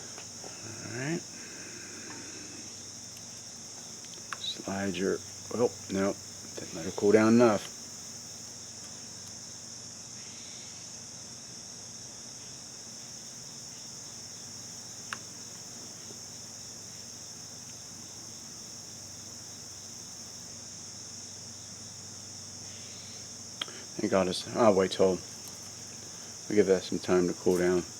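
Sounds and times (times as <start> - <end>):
faint low hum: 0.0 - 9.6
crickets chirping: 0.0 - 27.9.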